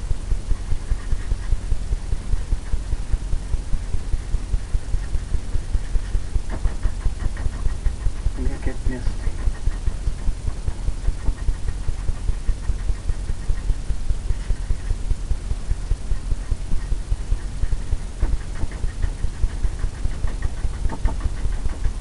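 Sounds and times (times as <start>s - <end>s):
brush tapping on canvas: 4.5s - 22.0s.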